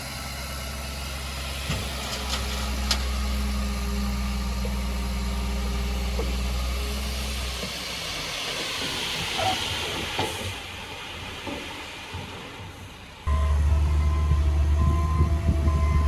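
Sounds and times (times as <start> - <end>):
heavy diesel engine running: 0.0 - 10.3, 13.2 - 16.0
hiss: 7.0 - 13.2.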